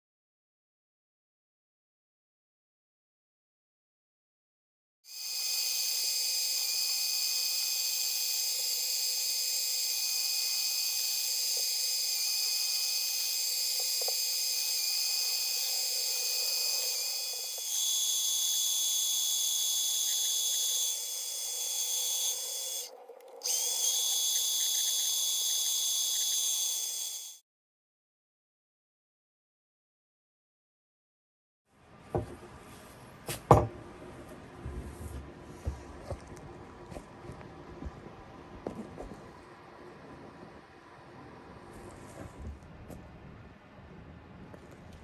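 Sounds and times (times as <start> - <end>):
lathe motor whine: 5.1 - 27.4.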